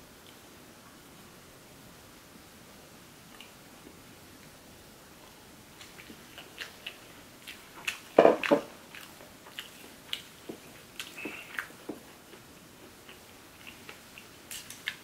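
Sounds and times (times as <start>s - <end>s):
chewing and biting: 5.8s - 15.0s.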